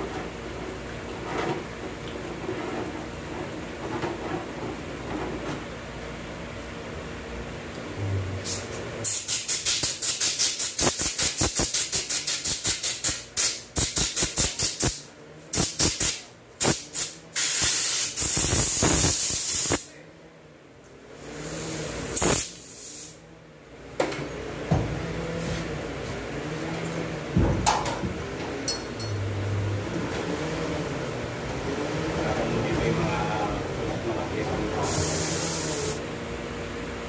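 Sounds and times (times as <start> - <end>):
air blow gun hissing: 8.4 - 15.0, 15.6 - 19.9, 21.3 - 23.2, 34.8 - 36.0.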